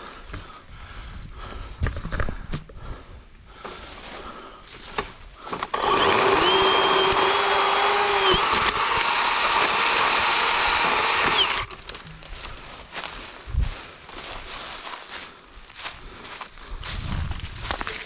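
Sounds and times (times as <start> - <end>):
electric chainsaw motor whining: 5.5 - 12.0.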